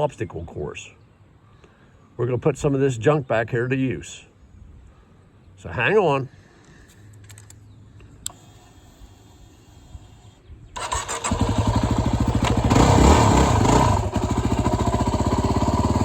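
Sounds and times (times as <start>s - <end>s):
motorcycle engine starting and idling: 8.2s - 16.0s.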